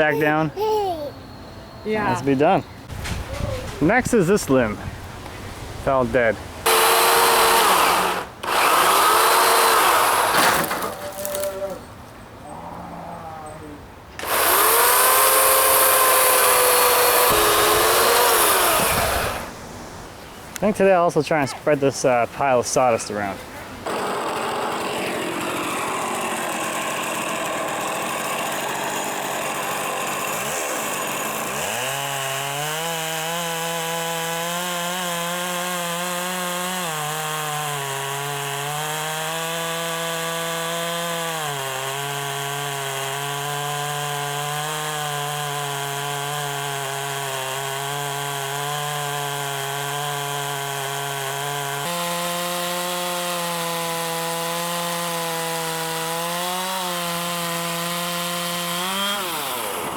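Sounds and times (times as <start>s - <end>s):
chainsaw cutting wood: 6.6s - 11.8s, 14.2s - 19.6s, 23.8s - 59.9s.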